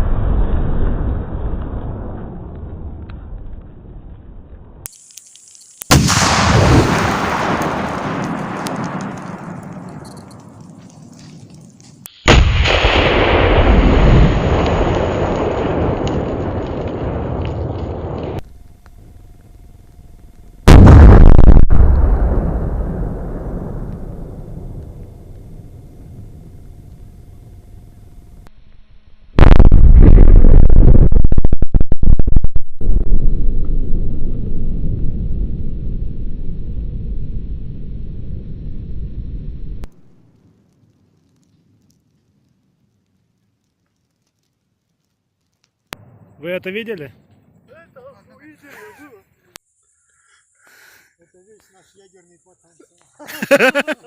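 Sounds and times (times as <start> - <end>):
gas cylinder explosion: 5.8 - 9.1
low rumble: 12.7 - 40.0.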